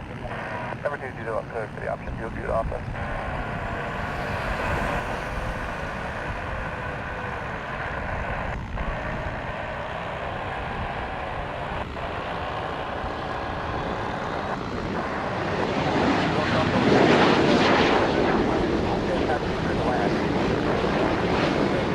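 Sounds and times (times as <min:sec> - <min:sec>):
jet engines running: 0:00.0 - 0:21.9.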